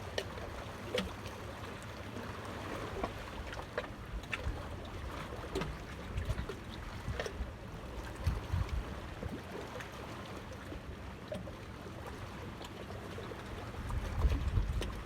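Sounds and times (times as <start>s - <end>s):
water lapping: 0.0s - 15.0s
wind rumble on microphone: 6.1s - 9.4s, 13.7s - 15.0s.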